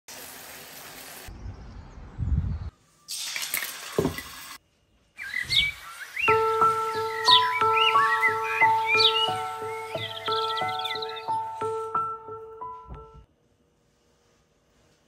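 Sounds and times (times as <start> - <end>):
small birds chirping: 5.1 - 12.6.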